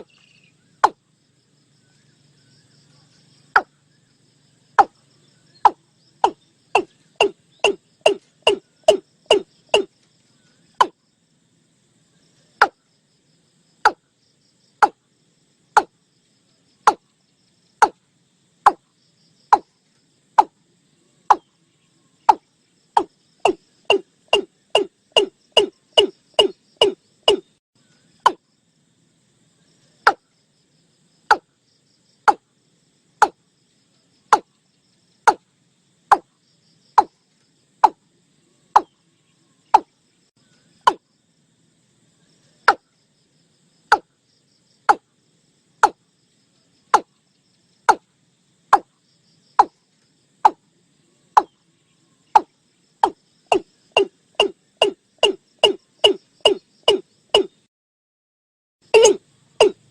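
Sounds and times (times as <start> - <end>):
bird calling short sharp notes: 23.4 - 27.5, 58.9 - 59.8.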